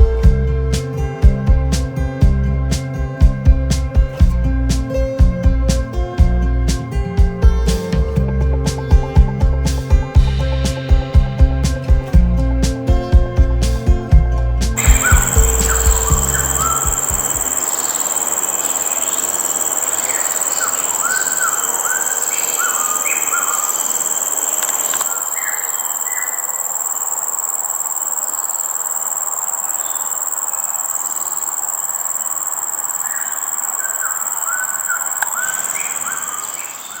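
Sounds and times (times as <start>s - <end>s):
insects droning: 14.7s - 37.0s
bird whistled calls: 14.8s - 37.0s.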